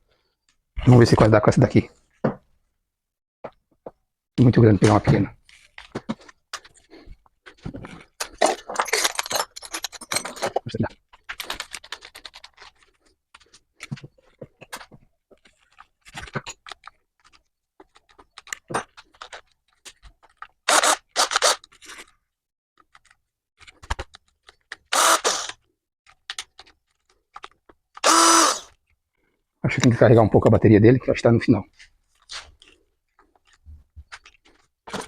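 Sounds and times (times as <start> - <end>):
metal tools scraping and clinking: 8.1 - 10.8.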